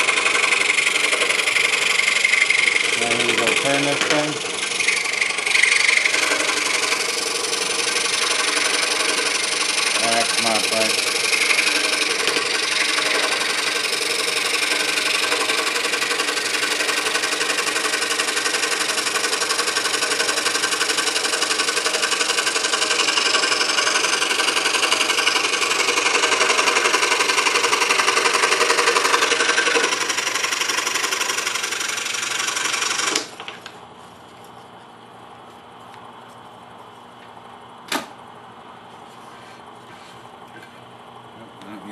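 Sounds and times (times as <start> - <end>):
scroll saw cutting wood: 0.0 - 33.5.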